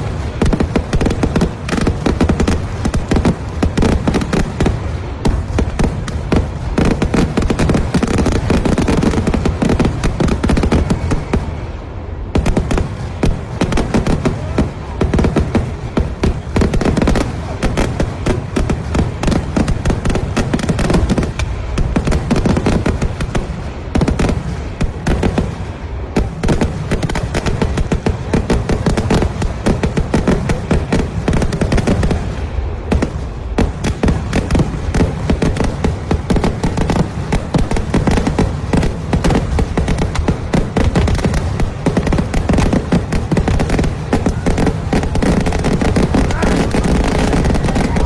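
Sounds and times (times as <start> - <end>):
fireworks exploding: 0.0 - 48.0.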